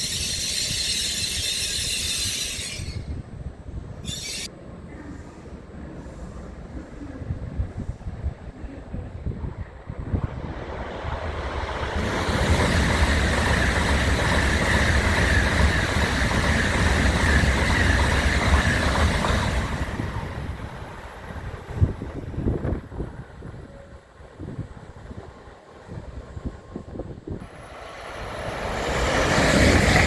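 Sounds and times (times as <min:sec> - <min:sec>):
high-speed train passing: 0:00.0 - 0:30.0.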